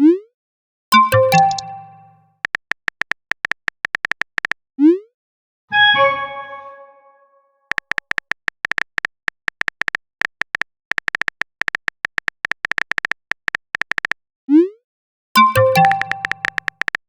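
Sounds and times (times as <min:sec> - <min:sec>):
notification tones: 0:01.0 - 0:02.2, 0:05.7 - 0:07.3, 0:15.4 - 0:16.7
phone keyboard typing clicks: 0:01.0 - 0:04.6, 0:07.7 - 0:14.2, 0:15.4 - 0:17.0.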